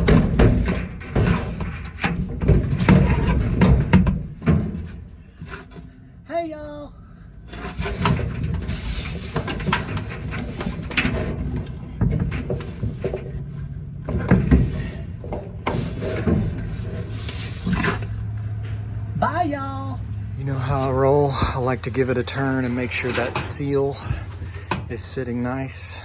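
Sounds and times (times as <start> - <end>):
metal knocks and clunks: 0.0 - 5.9, 7.5 - 19.3, 20.0 - 25.2
sheet metal scraping: 0.0 - 5.9, 7.5 - 19.1, 20.0 - 25.2
low hum: 6.9 - 26.0.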